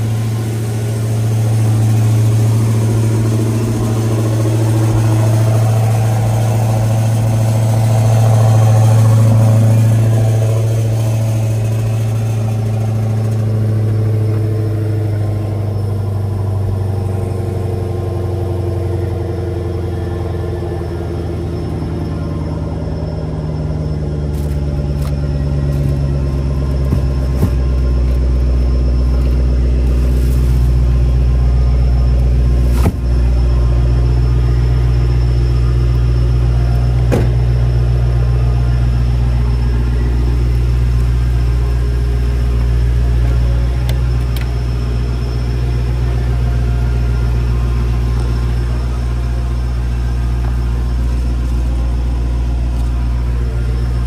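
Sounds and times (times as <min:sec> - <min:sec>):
car engine idling: 0:00.0 - 0:54.0
sharp knocks on car: 0:26.9 - 0:27.6, 0:37.1 - 0:37.4.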